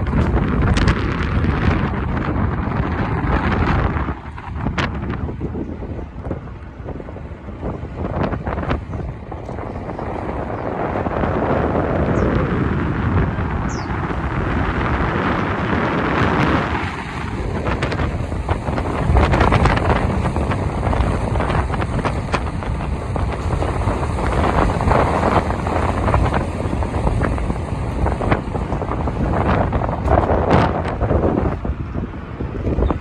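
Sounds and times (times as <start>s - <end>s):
motorbike engine: 0.0s - 33.0s
wind buffeting microphone: 0.0s - 33.0s.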